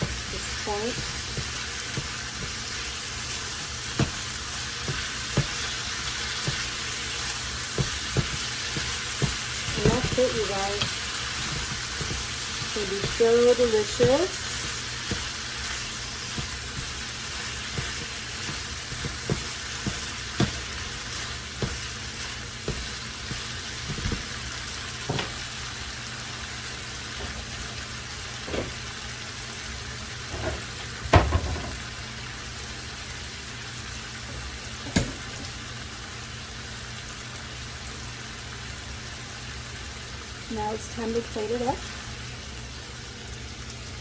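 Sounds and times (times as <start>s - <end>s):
vegetables sizzling in oil: 0.0s - 44.0s
utensil knocking against pan: 7.8s - 14.3s.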